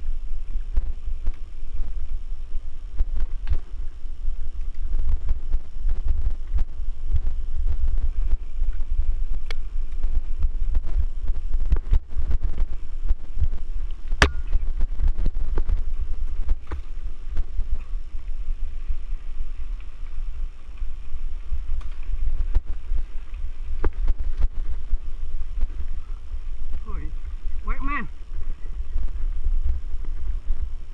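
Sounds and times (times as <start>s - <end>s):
wind rumbling on microphone: 0.0s - 30.9s
bike clicks and knocks: 13.8s - 14.8s, 21.6s - 22.6s.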